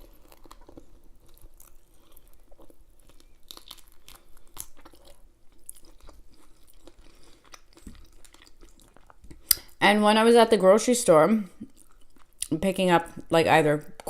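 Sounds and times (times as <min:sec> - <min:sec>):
person chewing: 0:00.0 - 0:09.8, 0:11.5 - 0:12.5
wet mouth clicks and smacks: 0:09.4 - 0:09.7.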